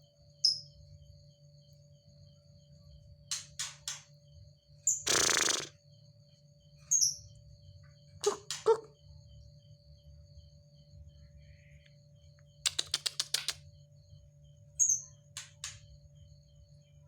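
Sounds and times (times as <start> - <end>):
bird sharp clicking calls: 5.0 - 5.7, 8.2 - 8.9, 12.6 - 13.6.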